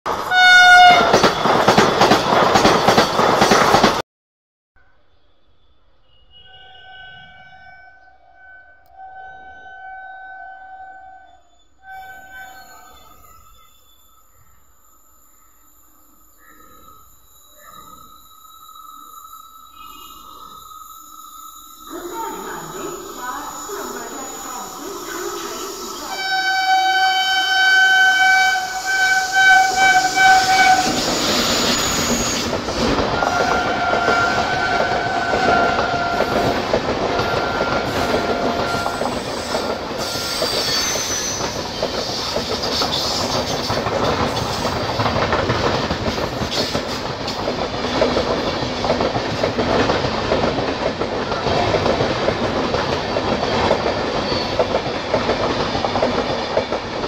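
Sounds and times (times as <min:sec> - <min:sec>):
wheels clacking over rail joints: 0:00.1 - 0:04.0, 0:29.4 - 0:57.0
train air horn blasts: 0:00.3 - 0:01.4, 0:26.1 - 0:32.4, 0:33.1 - 0:41.4.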